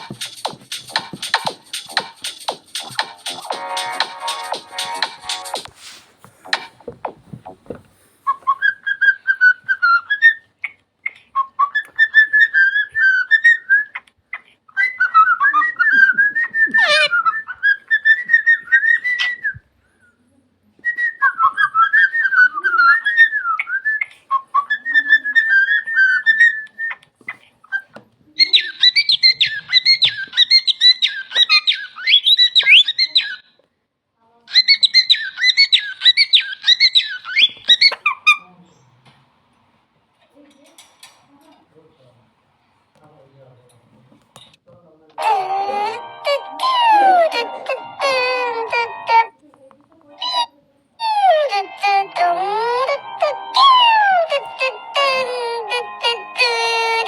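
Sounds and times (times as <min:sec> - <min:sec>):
bird whistling and trilling: 0:28.4 - 0:33.5, 0:34.5 - 0:38.0.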